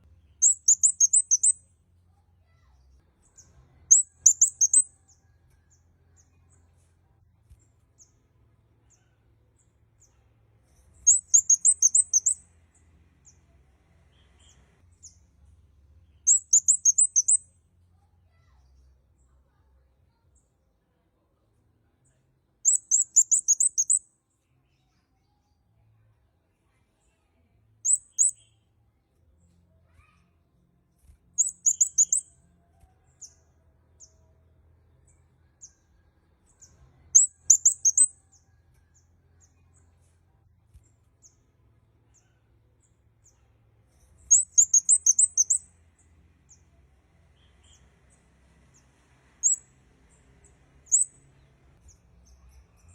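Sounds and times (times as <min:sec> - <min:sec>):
single bird chirps: 0:00.2 - 0:01.6, 0:03.4 - 0:06.4, 0:11.0 - 0:12.4, 0:16.2 - 0:17.4, 0:22.6 - 0:24.0, 0:27.8 - 0:28.6, 0:31.4 - 0:32.3, 0:37.1 - 0:38.3, 0:44.2 - 0:45.6, 0:49.4 - 0:49.6, 0:50.9 - 0:51.1
bird trills: 0:00.4 - 0:01.6, 0:03.4 - 0:05.2, 0:11.1 - 0:12.4, 0:16.2 - 0:17.4, 0:22.7 - 0:24.0, 0:31.4 - 0:32.3, 0:37.1 - 0:38.2, 0:44.3 - 0:45.6, 0:49.4 - 0:49.6, 0:50.9 - 0:51.1.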